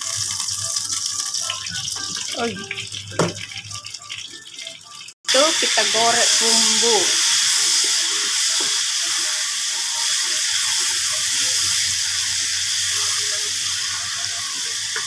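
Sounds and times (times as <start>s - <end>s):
spice paste sizzling in hot oil: 5.3s - 15.0s.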